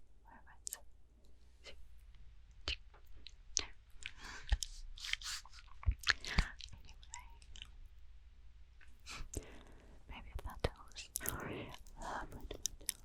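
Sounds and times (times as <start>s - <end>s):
tongue clicks: 0.6s - 0.8s, 11.2s - 13.0s
wet lip smacks: 3.6s - 7.7s.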